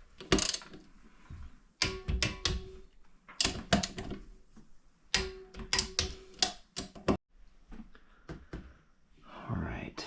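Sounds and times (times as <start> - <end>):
metal parts clicking and knocking: 0.2 - 0.9, 1.8 - 4.2, 5.1 - 7.2.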